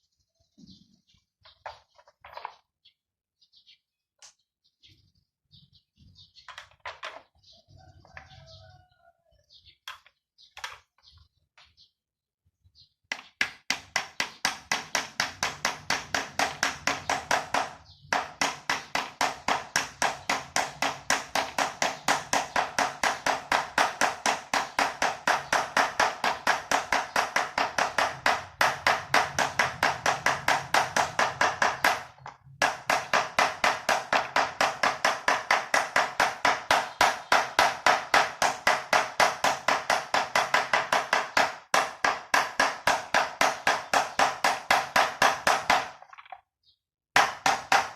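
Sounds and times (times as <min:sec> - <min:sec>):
rapid tapping blows on metal: 0:13.4 - 0:46.0, 0:47.2 - 0:47.9.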